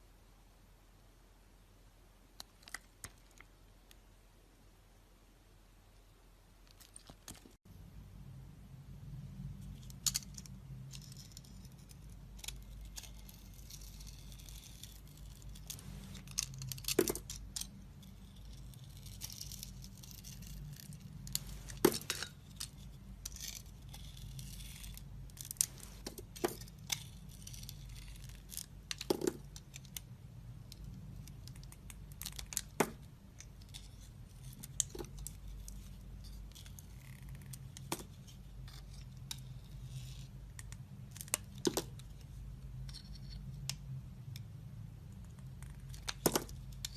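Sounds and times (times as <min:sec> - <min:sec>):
knife scraping soap: 0:11.0 - 0:21.0, 0:21.6 - 0:25.7, 0:26.5 - 0:29.1.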